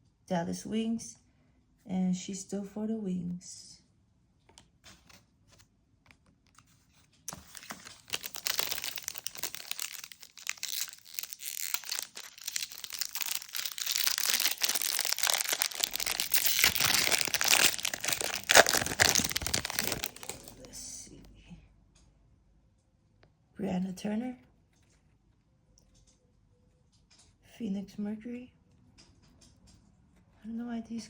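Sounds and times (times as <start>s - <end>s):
foil wrapper crinkling and tearing: 7.3s - 20.7s.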